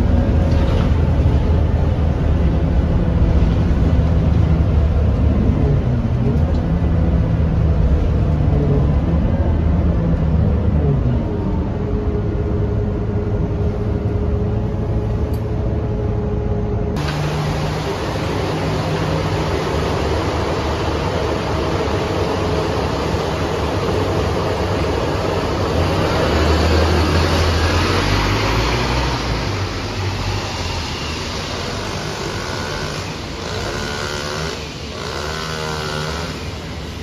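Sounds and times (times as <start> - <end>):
bus engine running: 0.0 - 37.0.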